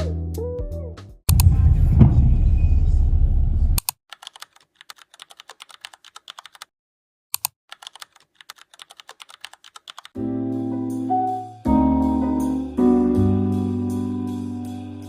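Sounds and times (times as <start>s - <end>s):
keyboard key clicks: 3.8s - 6.7s, 7.4s - 10.1s
background music: 10.2s - 15.0s.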